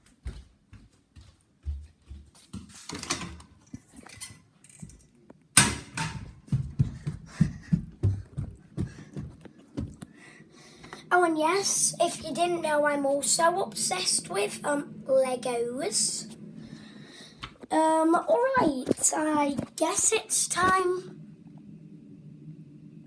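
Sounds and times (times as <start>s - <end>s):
footsteps running up stairs: 0.0s - 2.8s, 6.0s - 10.2s.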